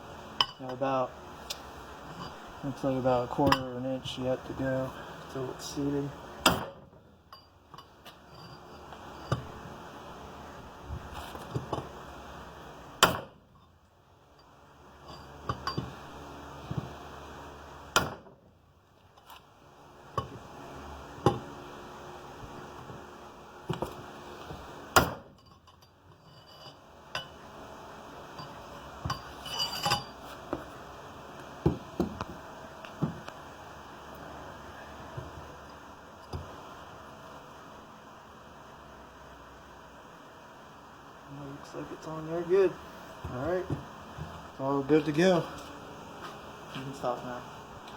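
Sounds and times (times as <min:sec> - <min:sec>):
light metallic taps and clinks: 0:07.3 - 0:08.7.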